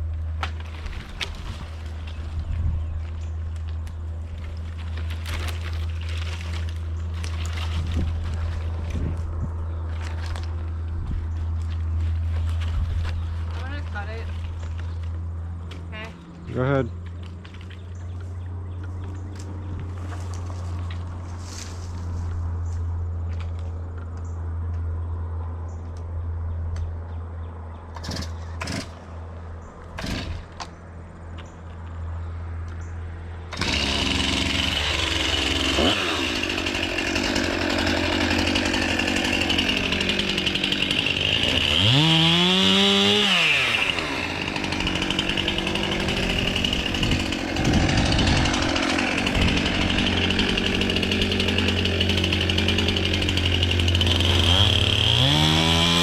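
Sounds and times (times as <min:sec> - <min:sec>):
chainsaw cutting at full throttle: 0:28.0 - 0:29.0, 0:30.0 - 0:30.6, 0:33.5 - 0:56.0.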